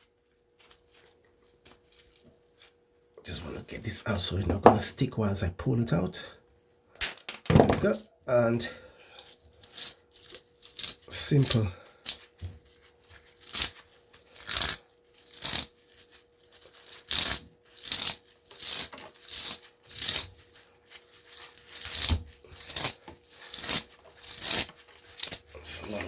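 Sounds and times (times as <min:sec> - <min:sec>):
faint steady hum: 0:00.0 - 0:26.0
wire being pulled scratchily: 0:09.2 - 0:26.0.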